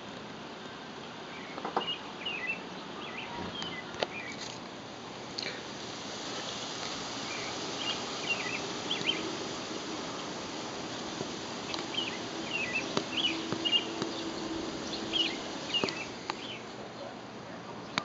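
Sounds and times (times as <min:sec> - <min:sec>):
steady background hiss: 0:00.0 - 0:18.0
small bird chirping: 0:01.4 - 0:04.5, 0:06.4 - 0:16.8.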